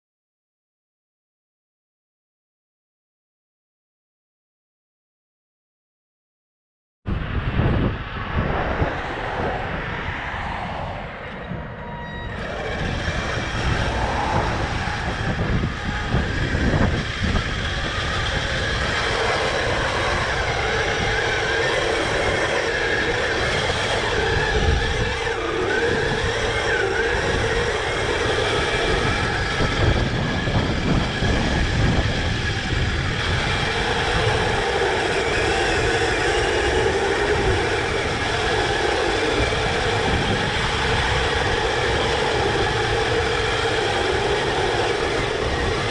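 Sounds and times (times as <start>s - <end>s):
tracks clattering and rumbling: 10.9s - 45.9s
electric motor whining: 12.1s - 45.9s.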